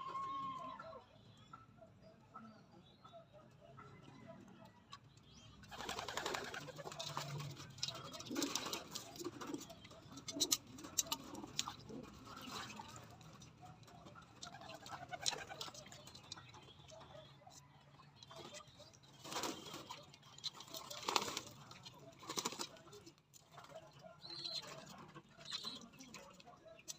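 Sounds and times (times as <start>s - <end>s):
pigeons cooing: 5.6s - 17.5s, 23.6s - 26.9s
pigeons splashing in water: 5.7s - 9.2s, 18.5s - 23.8s.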